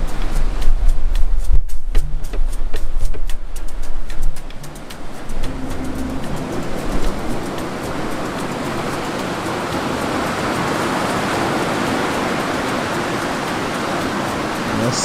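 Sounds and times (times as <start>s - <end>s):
breaking waves: 4.1s - 15.0s.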